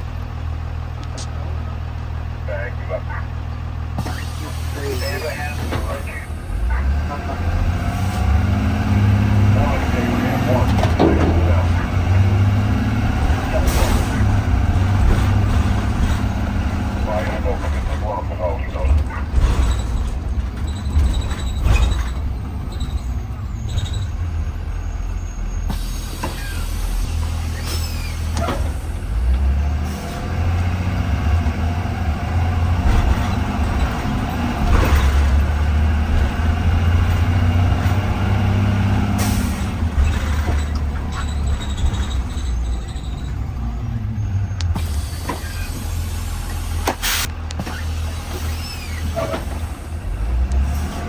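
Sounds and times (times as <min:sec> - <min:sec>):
bus engine and road rumble: 0:00.0 - 0:51.0
air brakes hissing: 0:04.0 - 0:06.6, 0:19.6 - 0:30.3, 0:39.0 - 0:43.6, 0:44.2 - 0:50.9.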